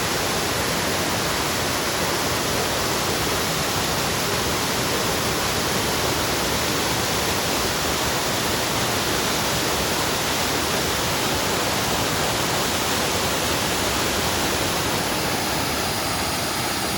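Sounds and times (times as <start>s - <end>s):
waterfall rushing and splashing: 0.0s - 16.9s.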